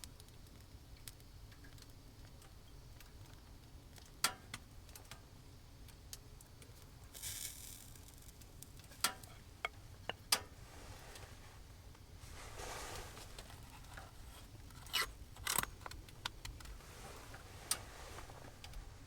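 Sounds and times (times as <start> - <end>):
short hiss: 10.5 - 14.5
sharp clicks and snaps: 14.7 - 16.8.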